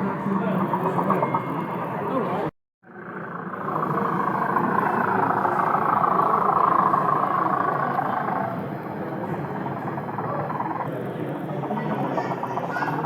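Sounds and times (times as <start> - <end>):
model train running on track: 3.2 - 13.0
murmur of crowd in hall: 3.4 - 13.0.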